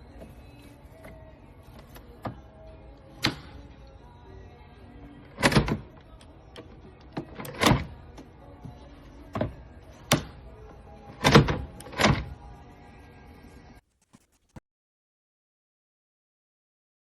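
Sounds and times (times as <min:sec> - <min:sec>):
faint background music: 0:00.0 - 0:14.6.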